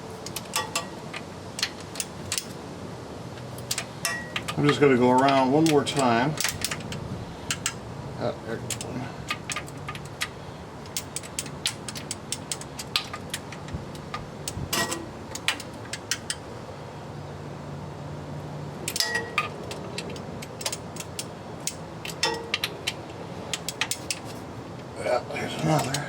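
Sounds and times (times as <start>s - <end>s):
low steady hum: 0.0s - 26.0s
hand ratchet clicking: 3.6s - 7.8s.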